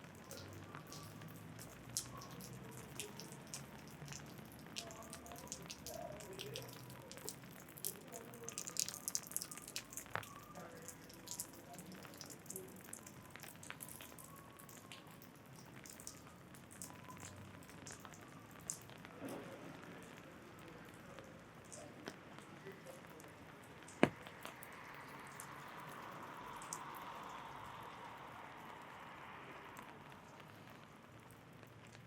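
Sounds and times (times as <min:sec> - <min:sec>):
raindrops tapping on umbrella: 0:00.1 - 0:10.6, 0:23.8 - 0:24.7.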